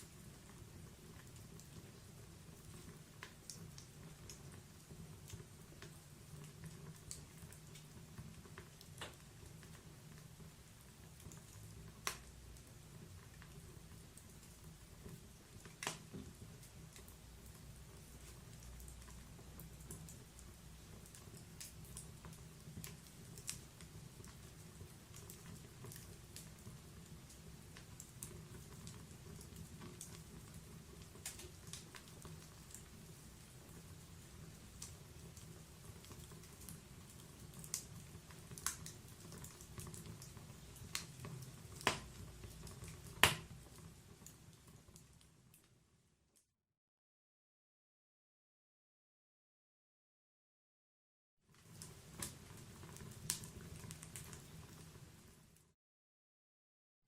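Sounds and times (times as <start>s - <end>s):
fire rumbling: 0.0s - 45.6s, 51.6s - 55.6s
fire snapping and popping: 0.0s - 45.8s, 51.6s - 55.6s
low rumble of flames: 51.6s - 55.6s.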